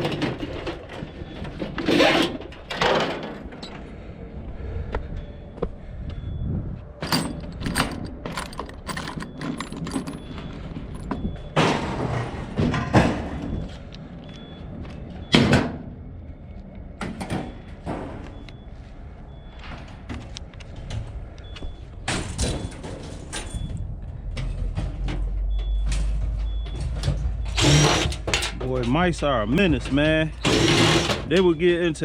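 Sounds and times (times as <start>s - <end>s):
sheet metal clanking and scraping: 0.0s - 3.9s, 22.1s - 31.5s.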